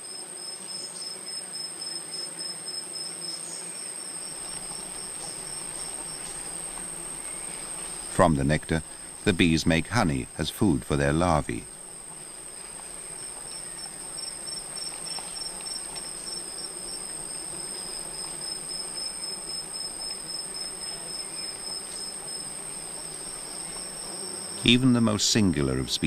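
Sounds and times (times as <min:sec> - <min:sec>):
insect high-pitched whine: 0:00.0 - 0:26.0
insect pulsing trill: 0:11.4 - 0:26.0.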